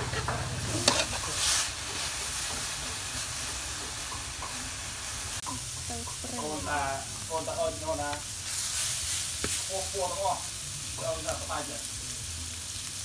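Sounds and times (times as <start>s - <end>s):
aromatics sizzling in wok: 0.0s - 13.0s
metal spatula stirring: 0.1s - 4.8s
spatula clacking on pan: 0.2s - 4.8s.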